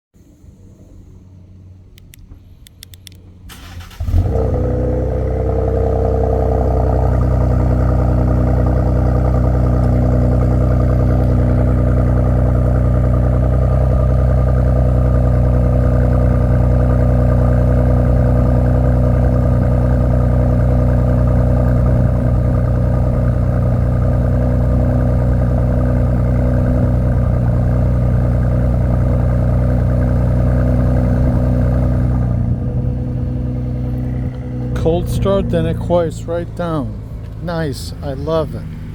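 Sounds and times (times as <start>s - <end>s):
starter clicks: 2.0s - 3.2s
car engine idling loudly: 4.0s - 38.9s.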